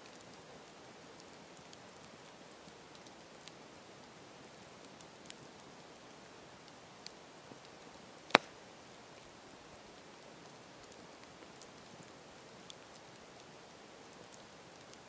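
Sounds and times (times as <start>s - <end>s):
campfire burning: 0.0s - 15.0s
fire crackles: 0.0s - 15.0s
loud sharp pop: 8.3s - 8.5s.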